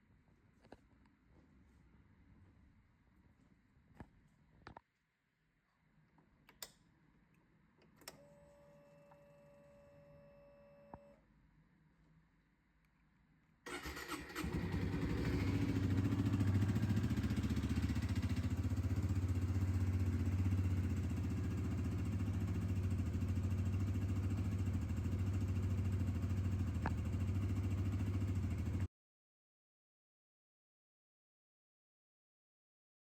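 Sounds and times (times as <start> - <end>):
motorcycle engine starting and idling: 13.7 - 28.9.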